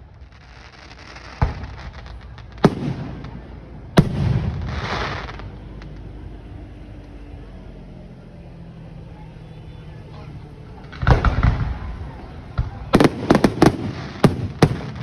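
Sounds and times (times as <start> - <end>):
firework hiss: 0.0 - 6.0
fireworks bangs: 0.0 - 6.3, 10.0 - 15.0.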